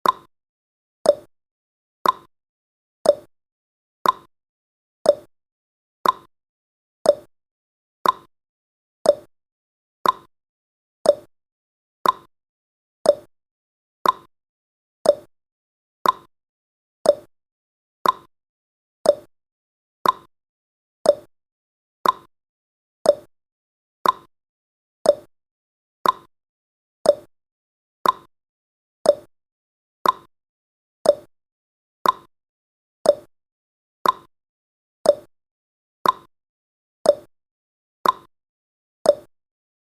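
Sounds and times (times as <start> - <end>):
clock ticking: 2.0 - 2.3, 4.0 - 4.3, 6.0 - 6.3, 8.0 - 8.3, 10.0 - 10.3, 12.0 - 12.3, 14.0 - 14.3, 15.1 - 15.3, 16.0 - 16.3, 18.0 - 18.3, 19.1 - 19.3, 20.0 - 20.3, 21.1 - 21.3, 22.0 - 22.3, 24.0 - 24.3, 26.0 - 26.3, 28.0 - 28.3, 29.1 - 29.3, 30.0 - 30.3, 31.1 - 31.3, 32.0 - 32.3, 33.1 - 33.3, 34.0 - 34.3, 35.1 - 35.3, 36.0 - 36.3, 38.0 - 38.3, 39.1 - 39.3.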